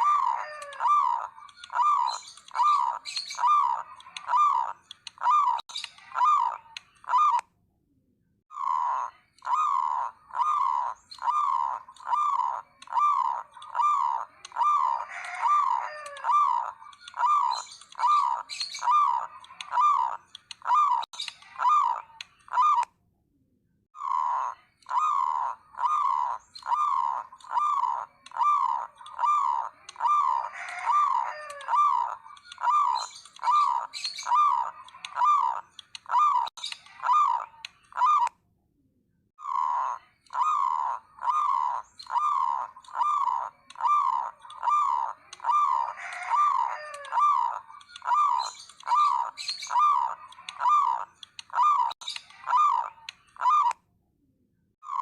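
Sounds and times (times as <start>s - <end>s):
doves cooing: 0.0s - 7.4s, 8.5s - 22.9s, 24.0s - 38.3s, 39.4s - 53.8s.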